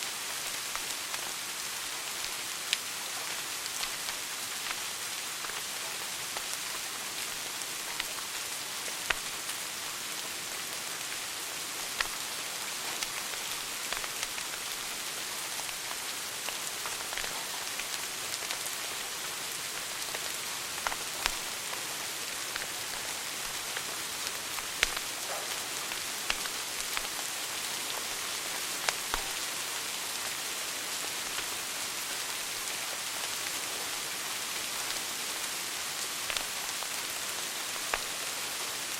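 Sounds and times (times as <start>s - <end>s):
fire crackling and popping: 3.7s - 5.7s, 9.0s - 9.5s, 11.8s - 19.1s, 19.7s - 29.5s, 36.2s - 37.0s, 37.7s - 38.1s
wood fire hissing: 11.1s - 29.4s.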